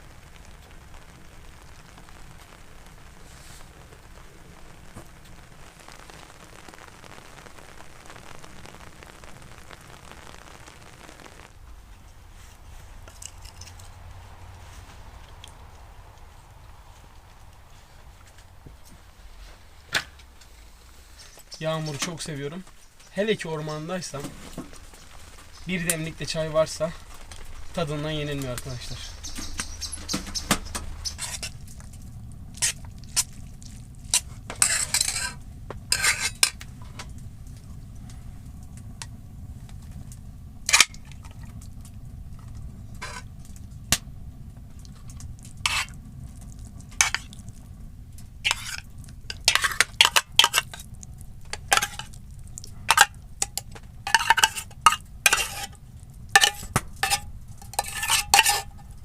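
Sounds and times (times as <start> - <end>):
low steady rumble: 0.0 - 59.0
metal cookware clinking and scraping: 51.5 - 52.1, 52.9 - 55.8, 56.4 - 58.9.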